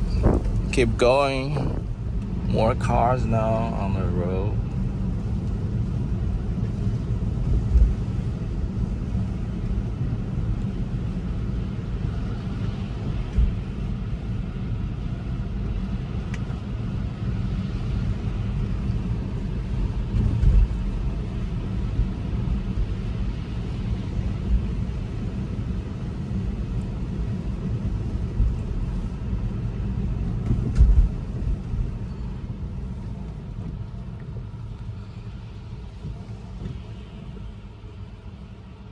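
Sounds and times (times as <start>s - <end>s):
short thumps: 0.0s - 2.0s
road and tyre rumble in cabin: 0.0s - 38.9s.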